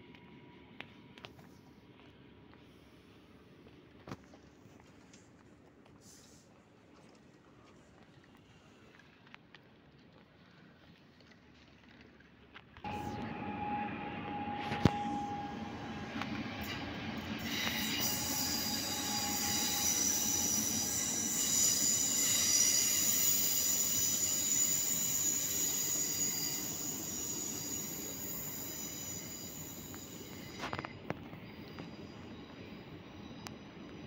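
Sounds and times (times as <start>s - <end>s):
train running gear rumble: 7.2s - 34.0s
train wheels squealing: 12.9s - 34.0s.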